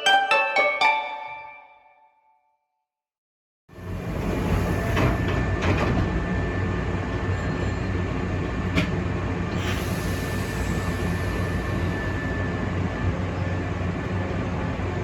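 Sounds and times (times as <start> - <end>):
train hum and rumble: 3.7 - 15.0.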